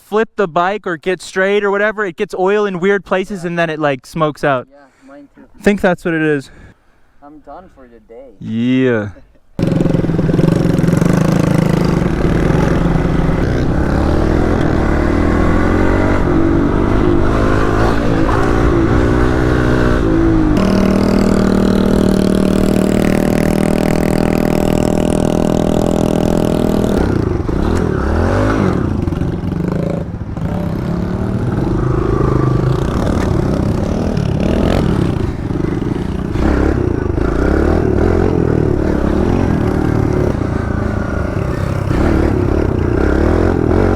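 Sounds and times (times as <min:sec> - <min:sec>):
mini bike engine revving: 0:09.6 - 0:43.9.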